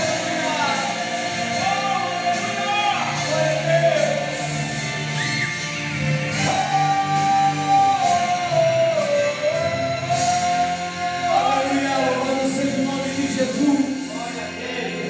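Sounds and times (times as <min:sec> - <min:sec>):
person singing wordless long notes: 0:06.2 - 0:15.0.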